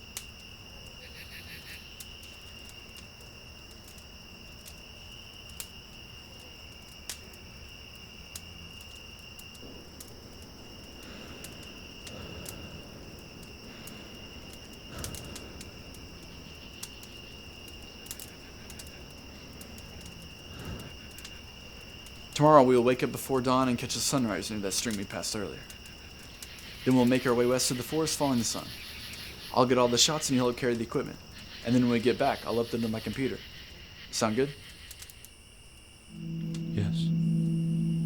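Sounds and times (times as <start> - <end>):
insects trilling: 0.0 - 38.0
faint clicks: 8.3 - 22.2.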